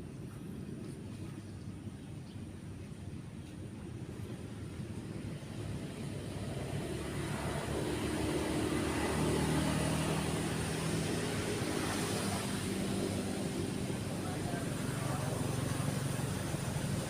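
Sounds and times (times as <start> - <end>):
vehicle engine passing: 5.5 - 17.0.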